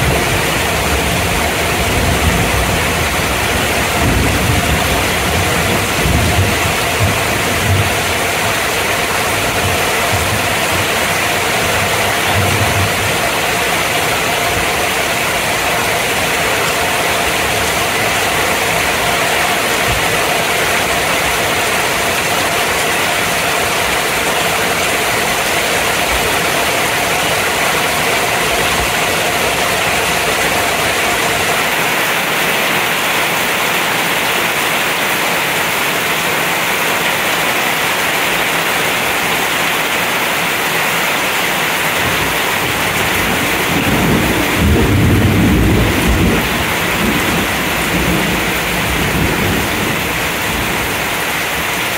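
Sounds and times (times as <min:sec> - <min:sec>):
low thunder rumble: 0:00.0 - 0:13.5, 0:42.6 - 0:51.0
heavy rain pouring: 0:00.0 - 0:51.9.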